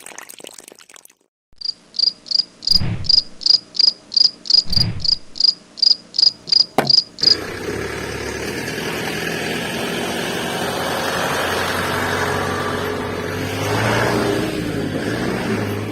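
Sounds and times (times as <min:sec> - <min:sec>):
high regular chirping: 0:05.4 - 0:07.4.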